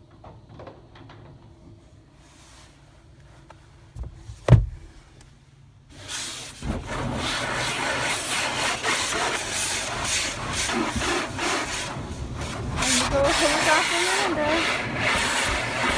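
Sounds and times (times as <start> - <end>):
dull thump: 4.0 - 5.1
brush scrubbing a car: 5.9 - 15.9.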